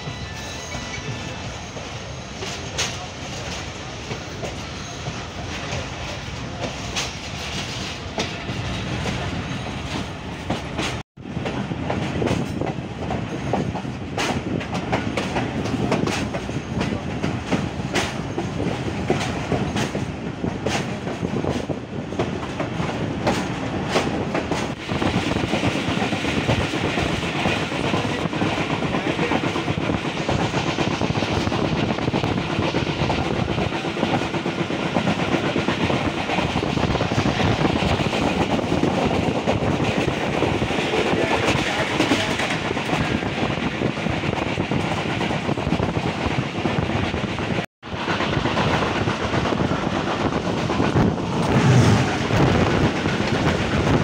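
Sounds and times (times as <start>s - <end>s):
train rumbling: 0.0s - 54.0s.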